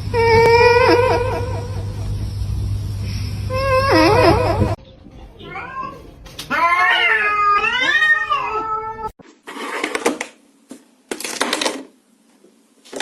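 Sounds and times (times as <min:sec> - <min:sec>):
cat yowling meow: 0:05.4 - 0:09.1.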